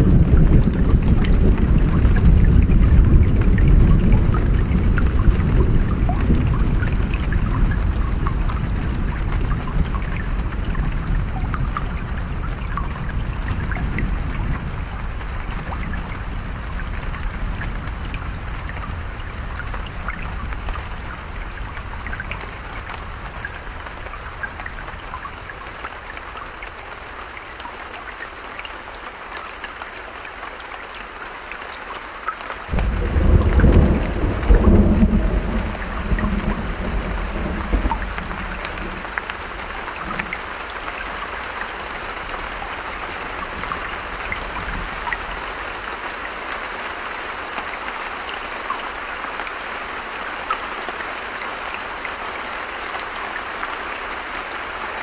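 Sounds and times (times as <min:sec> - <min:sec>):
thunder rumbling: 0:00.0 - 0:23.3, 0:32.7 - 0:40.4
raindrops pattering close by: 0:00.0 - 0:55.0
steady rain: 0:00.0 - 0:55.0.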